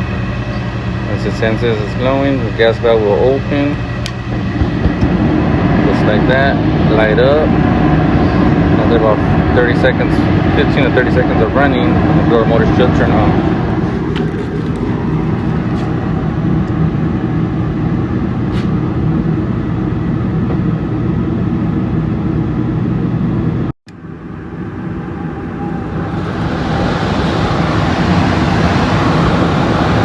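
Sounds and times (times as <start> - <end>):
blower rush of air: 0.0 - 30.0
furnace burners humming: 0.0 - 30.0.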